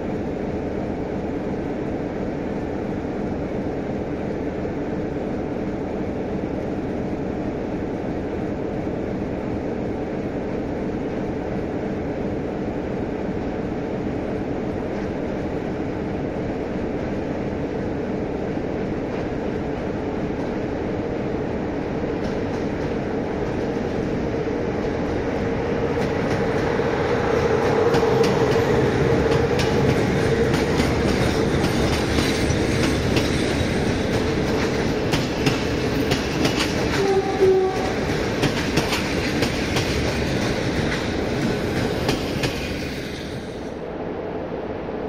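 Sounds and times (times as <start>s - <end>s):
electric locomotive whine: 0.0s - 45.0s
wheels clicking over rail joints: 27.6s - 42.7s
train wheel squeal: 35.4s - 38.2s, 41.8s - 43.7s.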